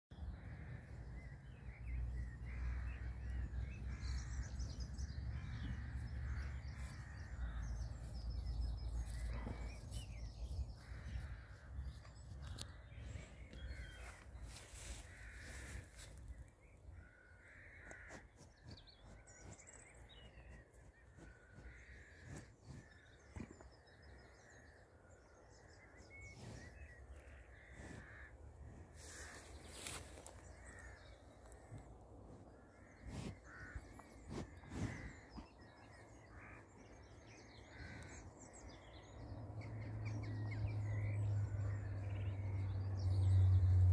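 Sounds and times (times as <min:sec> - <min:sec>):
birds cawing: 0:17.0 - 0:18.3, 0:27.2 - 0:28.4, 0:32.6 - 0:39.2
low rumble: 0:39.2 - 0:43.9.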